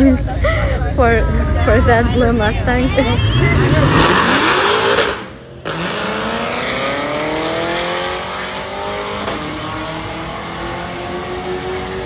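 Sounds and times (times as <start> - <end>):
racing car engine accelerating: 3.1 - 12.0.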